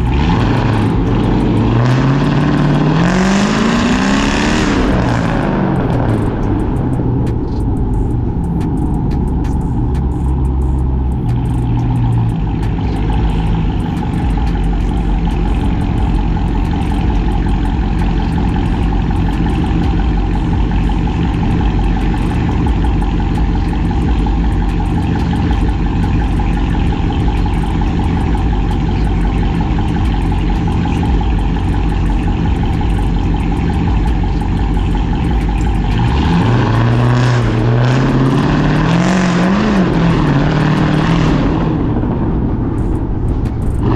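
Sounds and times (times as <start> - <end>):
deep engine exhaust rumble: 0.0 - 43.9.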